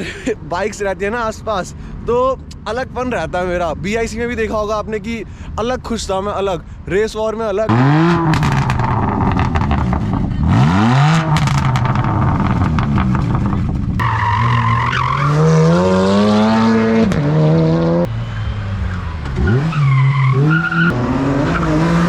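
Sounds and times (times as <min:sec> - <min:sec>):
engines revving and accelerating: 0:07.7 - 0:22.0
tire squeal: 0:13.4 - 0:15.9, 0:18.1 - 0:21.9.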